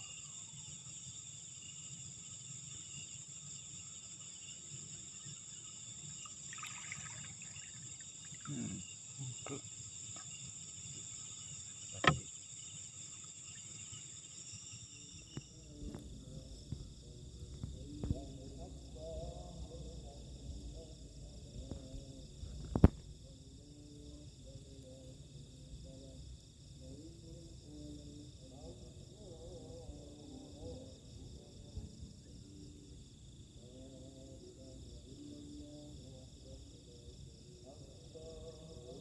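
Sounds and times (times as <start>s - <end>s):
crickets chirping: 0.0s - 39.0s.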